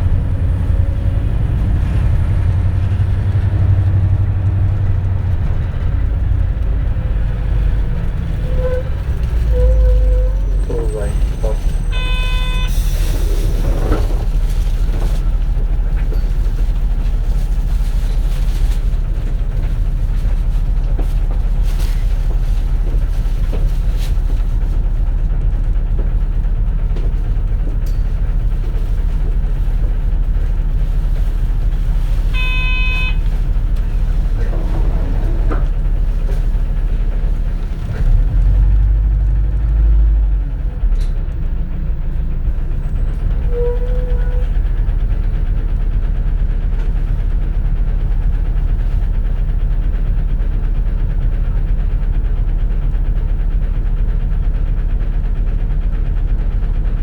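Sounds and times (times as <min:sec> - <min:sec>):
bus engine and road rumble: 0:00.0 - 0:57.0
short electronic tone: 0:11.9 - 0:12.7, 0:32.4 - 0:33.2.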